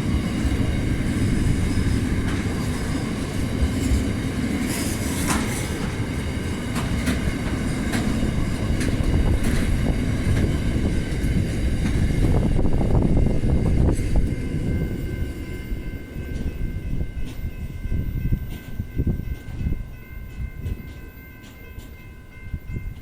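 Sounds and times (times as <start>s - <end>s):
train wagons rumbling: 0.0s - 23.0s
wheels clicking over rail joints: 1.9s - 12.0s.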